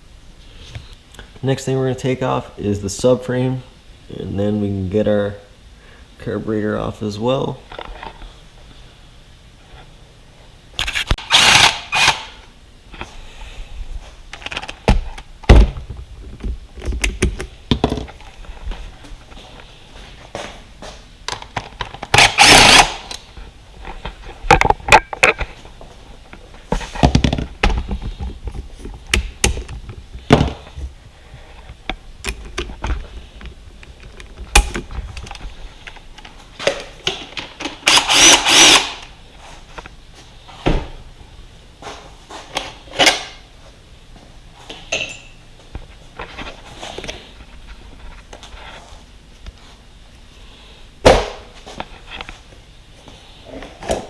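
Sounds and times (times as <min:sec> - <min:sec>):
handheld power tool running: 0:11.2 - 0:12.3, 0:22.1 - 0:23.2, 0:37.8 - 0:39.1.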